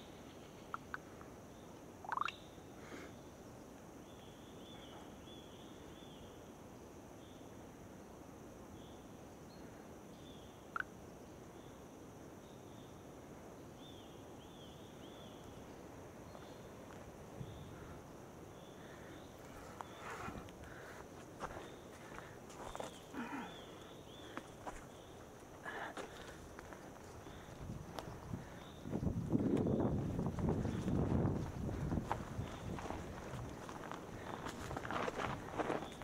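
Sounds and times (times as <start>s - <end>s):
small birds chirping: 0.0s - 6.4s, 13.6s - 36.0s
steady outdoor hiss: 0.0s - 36.0s.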